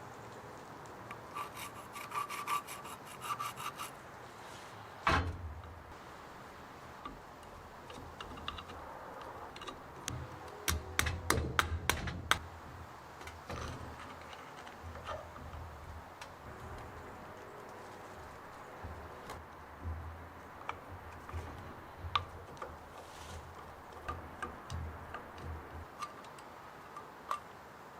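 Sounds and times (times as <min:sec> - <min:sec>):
rubbing and scraping: 0:01.2 - 0:04.8, 0:13.3 - 0:26.0.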